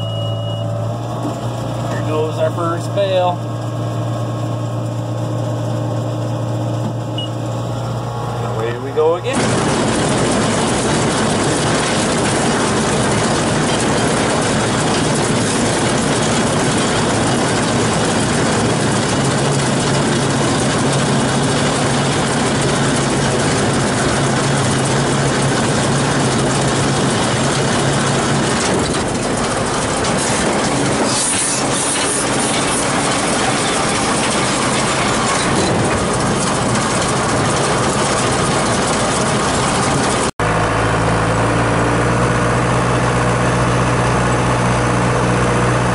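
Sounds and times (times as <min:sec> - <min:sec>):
baler machinery clatter: 0:00.0 - 0:41.0
tractor diesel engine running: 0:00.0 - 0:45.9.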